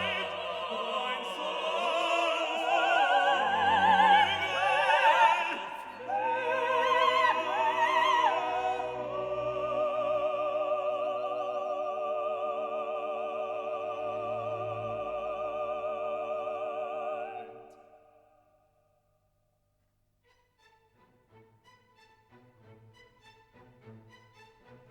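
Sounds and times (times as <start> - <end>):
operatic singing: 0.0 - 18.4
classical accompaniment: 20.2 - 24.9.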